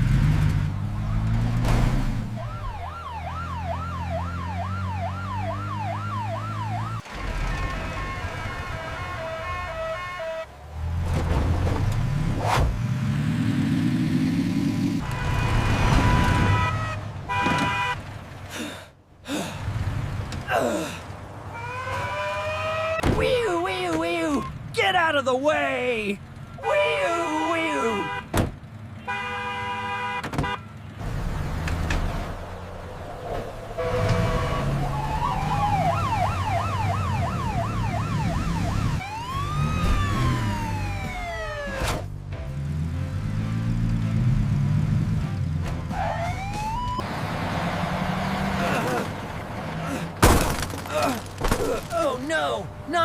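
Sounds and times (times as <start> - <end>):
ambulance siren: 2.3 - 10.5, 15.0 - 18.0, 21.5 - 23.0, 33.8 - 42.1, 45.9 - 48.1
car horn honking: 7.1 - 10.5, 15.0 - 18.1, 26.4 - 28.4, 29.0 - 30.9.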